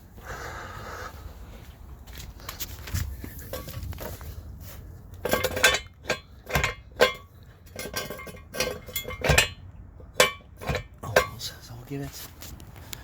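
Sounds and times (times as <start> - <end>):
floor jack handle clinking: 5.2 - 9.6.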